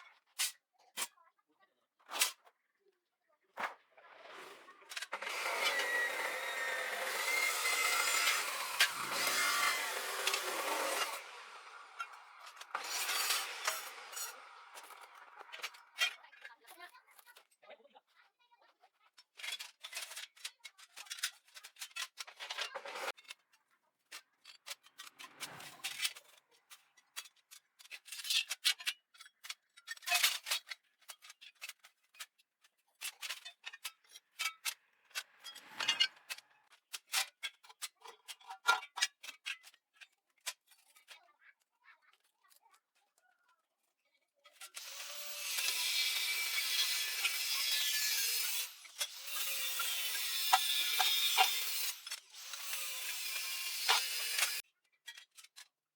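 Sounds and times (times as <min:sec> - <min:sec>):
rasping scrape: 0:03.6 - 0:16.2, 0:19.4 - 0:23.4, 0:24.1 - 0:32.1, 0:33.0 - 0:38.5
hand tools clattering: 0:05.0 - 0:16.0.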